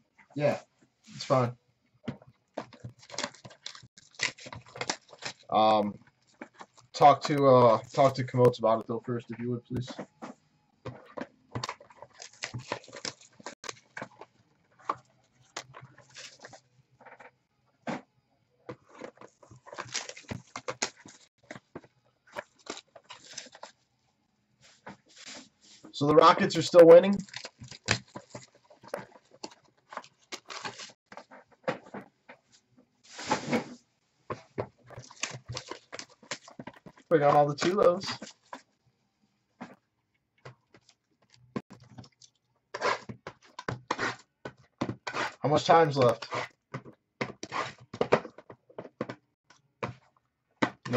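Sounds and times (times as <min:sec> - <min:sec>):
card packs rustling: 0:00.4 - 0:01.5, 0:02.1 - 0:10.3, 0:10.9 - 0:17.3, 0:18.7 - 0:23.8, 0:24.7 - 0:32.4, 0:33.1 - 0:38.7, 0:40.4 - 0:49.2
cards and boxes clicking: 0:02.1 - 0:08.5, 0:10.9 - 0:17.3, 0:18.7 - 0:23.8, 0:26.3 - 0:32.4, 0:34.3 - 0:38.7, 0:50.6 - 0:50.9
foil wrappers rustling: 0:02.7 - 0:05.6, 0:11.6 - 0:14.2, 0:19.1 - 0:21.6, 0:22.3 - 0:23.7, 0:26.2 - 0:31.3, 0:34.9 - 0:38.7.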